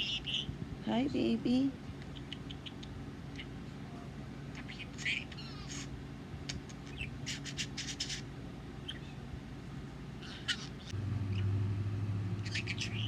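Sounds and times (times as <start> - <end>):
budgerigar chattering: 0.0 - 0.5, 2.0 - 3.6, 4.6 - 5.9, 6.5 - 9.1, 10.2 - 10.9, 12.4 - 13.0
low steady hum: 0.0 - 13.0.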